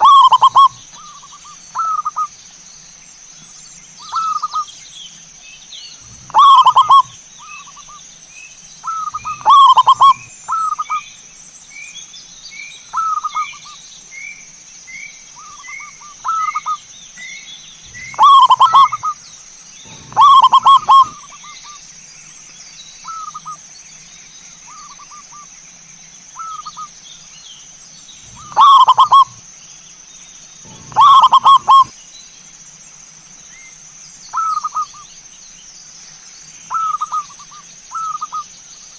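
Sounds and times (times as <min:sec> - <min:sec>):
doves cooing: 0:00.0 - 0:02.3, 0:06.0 - 0:07.9, 0:08.8 - 0:11.0, 0:17.9 - 0:19.2, 0:19.8 - 0:21.8, 0:28.2 - 0:29.4, 0:30.6 - 0:31.9
short rising bird chirps: 0:08.8 - 0:11.0, 0:15.4 - 0:21.8, 0:28.2 - 0:29.4, 0:30.6 - 0:31.9
steady high whine: 0:17.6 - 0:21.4.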